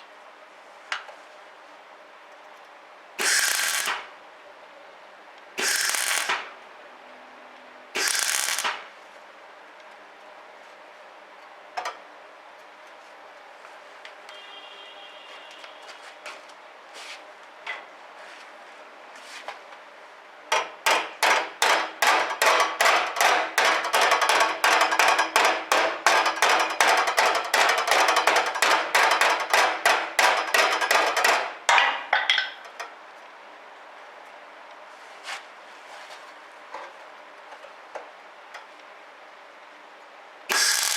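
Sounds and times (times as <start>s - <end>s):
hammer striking sheet steel: 3.2s - 4.1s, 5.6s - 6.5s, 8.0s - 8.9s, 20.6s - 32.6s, 40.5s - 40.9s.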